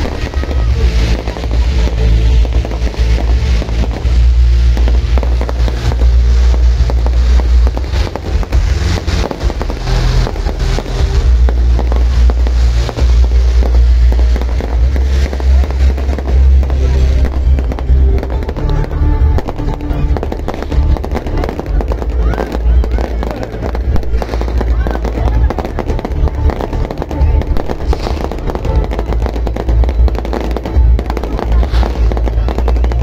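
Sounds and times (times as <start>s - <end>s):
fireworks bangs and crackles: 0.0s - 33.0s
loud music with heavy bass: 0.0s - 33.0s.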